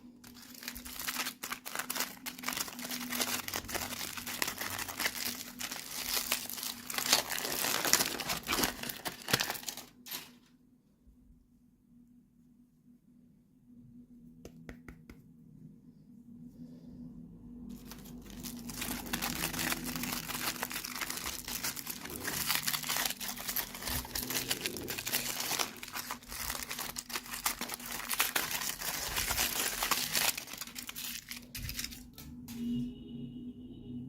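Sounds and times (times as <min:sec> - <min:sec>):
packaging crinkling and tearing: 0:00.0 - 0:10.4, 0:17.7 - 0:32.4.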